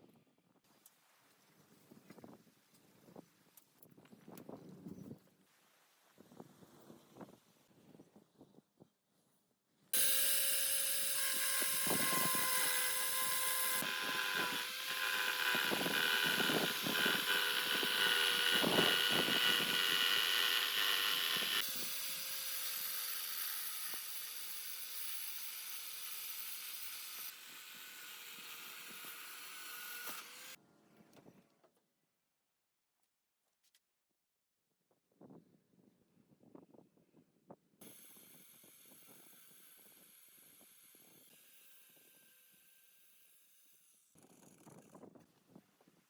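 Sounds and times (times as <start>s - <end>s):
electric power tool whining: 10.0s - 30.6s, 37.8s - 42.6s.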